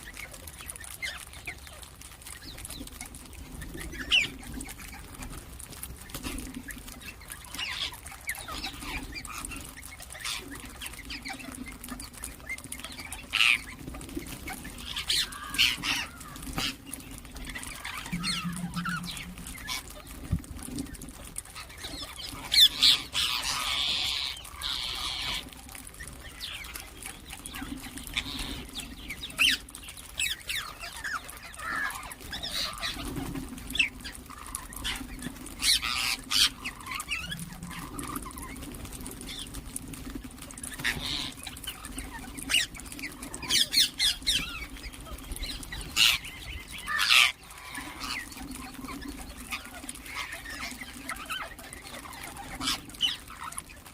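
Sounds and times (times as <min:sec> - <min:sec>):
parakeets squawking and chirping: 0:00.0 - 0:53.9
steady low hum: 0:17.4 - 0:21.0.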